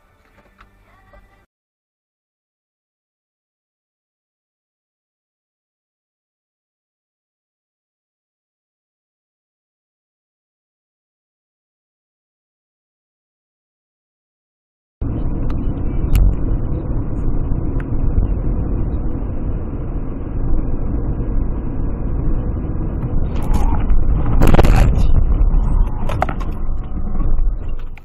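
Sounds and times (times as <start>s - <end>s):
car road and engine rumble: 15.0s - 28.0s
rush of noise: 15.0s - 28.0s.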